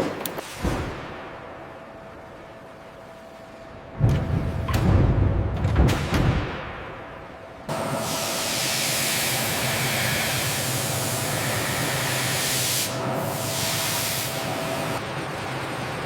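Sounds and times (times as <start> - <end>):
steady hiss of jetting air: 7.7 - 15.0.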